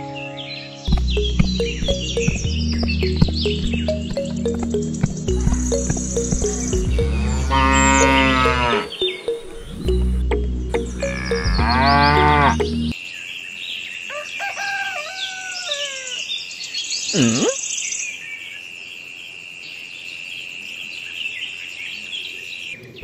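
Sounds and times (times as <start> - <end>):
birds chirping and calling: 0.0 - 18.7
steady high tone: 0.9 - 12.9
cow mooing: 7.1 - 9.0, 11.0 - 12.8.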